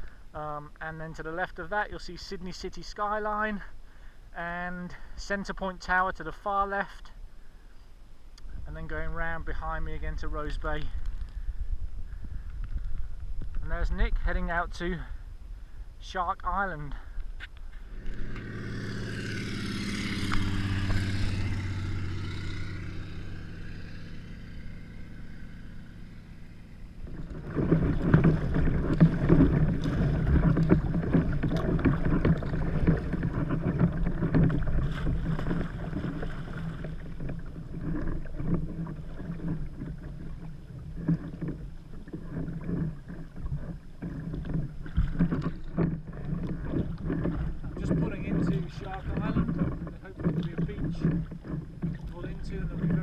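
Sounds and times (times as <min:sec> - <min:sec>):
wind rumble on microphone: 0:08.4 - 0:53.0
water splashing from paddling: 0:17.0 - 0:53.0
motor humming: 0:17.8 - 0:53.0.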